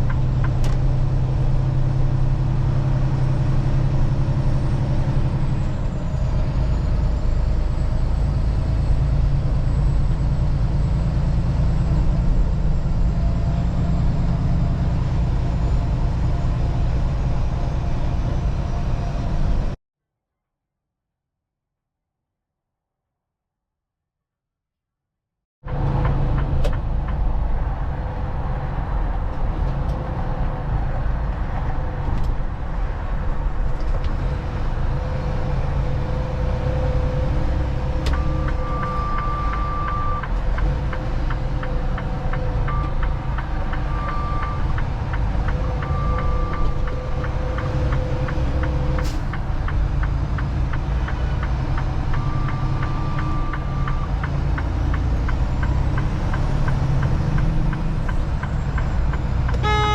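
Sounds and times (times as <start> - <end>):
truck engine and road rumble: 0.0 - 19.8, 25.6 - 59.9
short high-pitched tones: 59.6 - 59.9.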